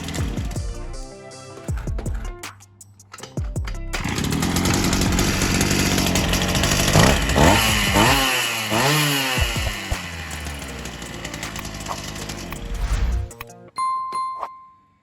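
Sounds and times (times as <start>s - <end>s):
brushcutter engine revving: 0.0s - 0.6s, 4.0s - 12.9s.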